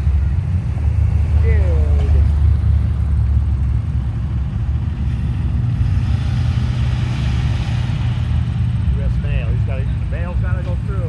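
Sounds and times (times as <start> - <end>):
vehicles driving past: 0.0 - 11.0.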